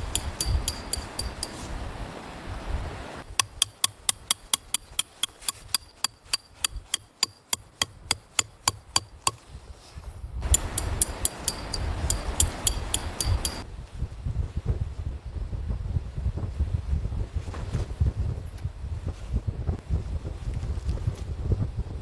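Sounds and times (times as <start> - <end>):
wind rumbling on microphone: 0.0 - 3.4, 8.7 - 22.0.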